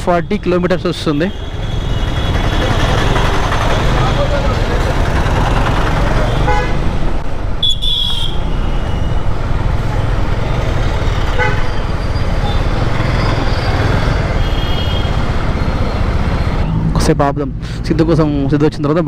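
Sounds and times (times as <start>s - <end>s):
road traffic rumble: 0.0s - 19.0s
vehicle horns honking: 6.2s - 6.9s, 7.6s - 9.2s, 11.2s - 13.2s, 14.3s - 15.2s.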